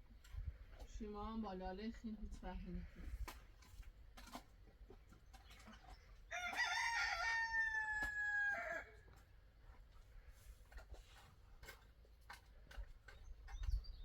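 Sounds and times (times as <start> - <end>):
rooster crowing: 6.3 - 9.0.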